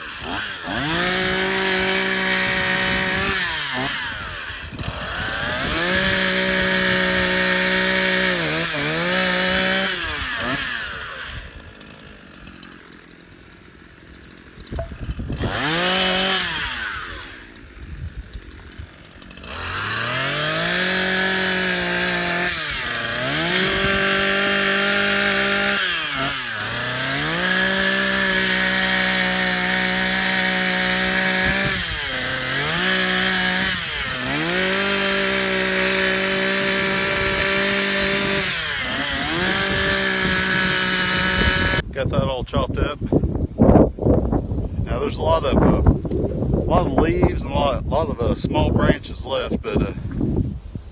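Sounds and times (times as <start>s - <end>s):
engine running at high revs: 0.0s - 41.8s.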